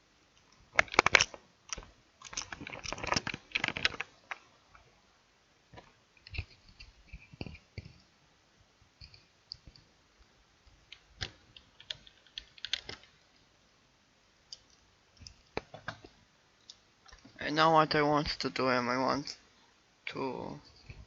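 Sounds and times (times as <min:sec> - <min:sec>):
mouse and keyboard clicks: 0:10.9 - 0:13.1.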